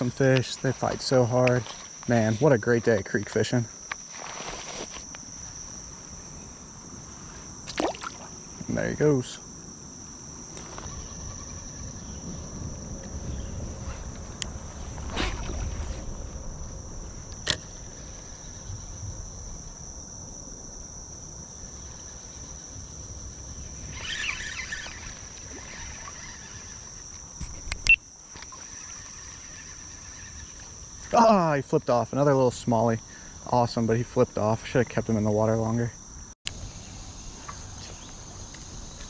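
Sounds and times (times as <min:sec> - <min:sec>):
insects trilling: 0:00.0 - 0:39.0.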